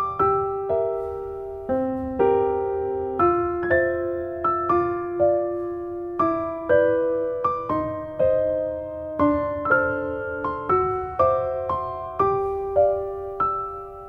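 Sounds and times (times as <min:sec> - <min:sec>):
gentle piano chords: 0:00.0 - 0:14.0.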